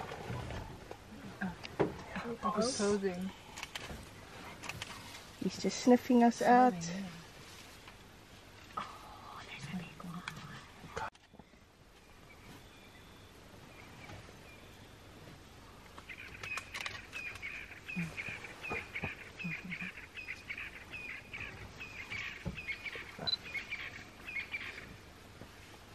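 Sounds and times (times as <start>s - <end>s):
bird calling: 16.0s - 25.0s.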